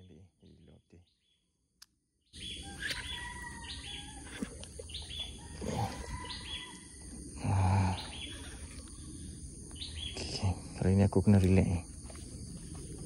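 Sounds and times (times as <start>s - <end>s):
birds calling: 2.2s - 11.6s.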